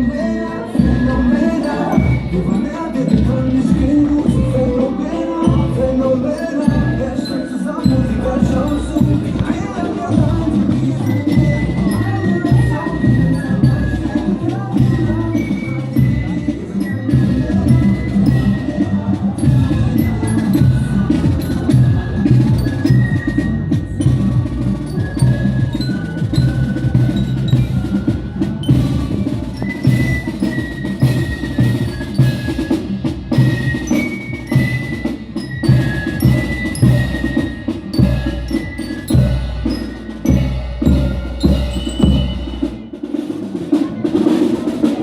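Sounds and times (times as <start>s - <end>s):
high bell-like melody: 0.0s - 23.0s, 33.3s - 43.0s
marching band playing: 0.0s - 45.0s
drum strikes: 0.8s - 45.0s.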